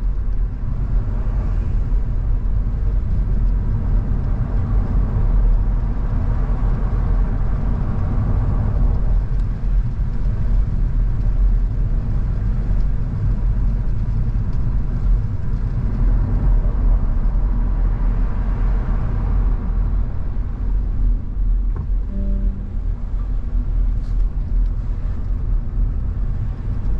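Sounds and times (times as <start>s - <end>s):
car engine and tyre rumble: 0.0s - 26.9s
short tone: 22.0s - 23.4s.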